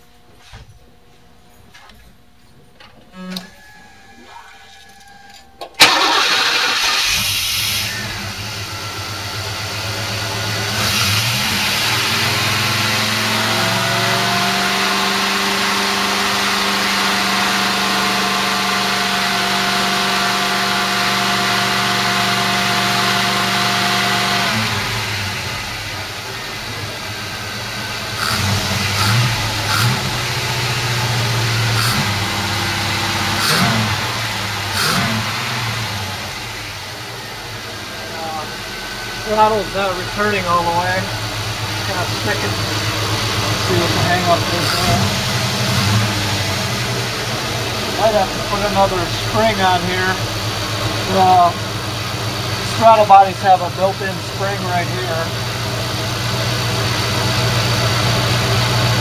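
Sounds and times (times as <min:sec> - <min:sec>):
car engine starting and idling: 0:05.2 - 0:59.0.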